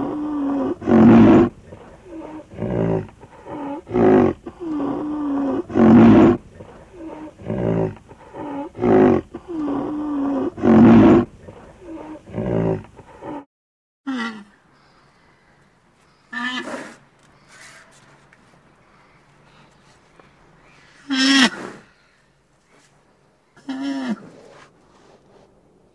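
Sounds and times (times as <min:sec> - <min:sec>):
low drawn-out animal moan: 0:00.0 - 0:13.5.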